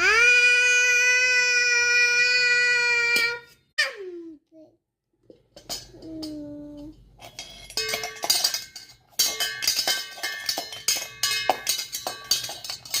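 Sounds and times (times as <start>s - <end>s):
child's vocal tone: 0.0s - 4.8s
metal kitchenware clanging: 5.3s - 13.0s.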